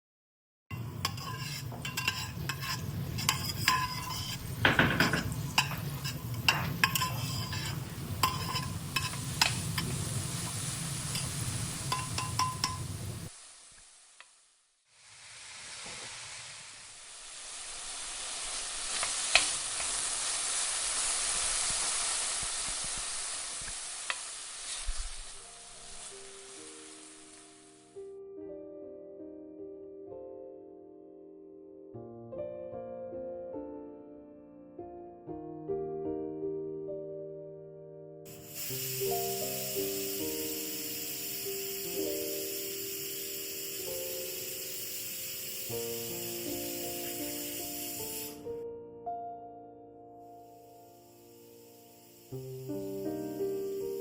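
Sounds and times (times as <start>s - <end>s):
food sizzling in hot pan: 0.7s - 28.0s, 38.3s - 48.6s, 50.4s - 54.0s
utensil clinking against pot: 0.8s - 10.0s, 11.9s - 12.9s.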